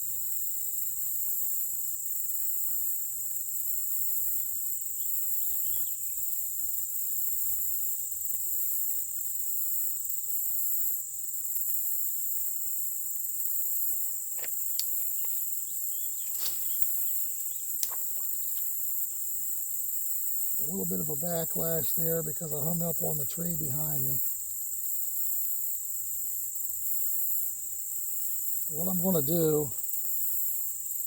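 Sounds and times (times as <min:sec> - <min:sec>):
high-pitched insect chorus: 0:00.0 - 0:31.0
faint bird chirps: 0:15.5 - 0:17.8.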